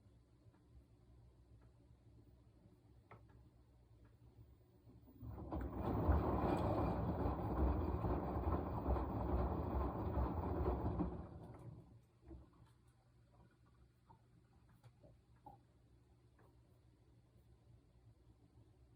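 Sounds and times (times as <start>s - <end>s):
washing machine drum tumbling: 5.0s - 12.4s.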